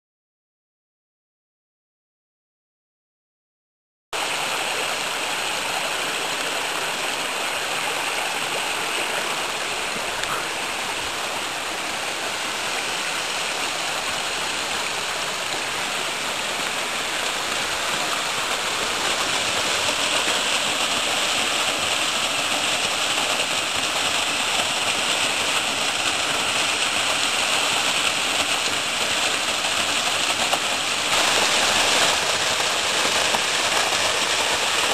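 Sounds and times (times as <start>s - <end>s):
waterfall rushing and splashing: 4.2s - 34.9s.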